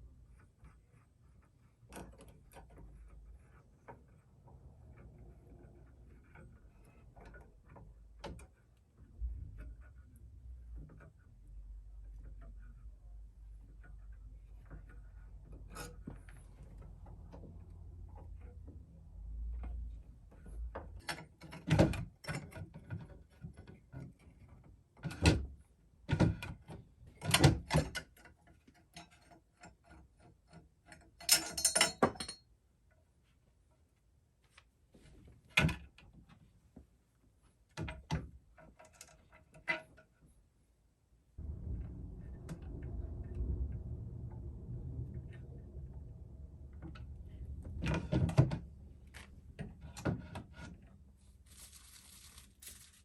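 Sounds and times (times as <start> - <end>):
scraping rustle: 48.8 - 53.0.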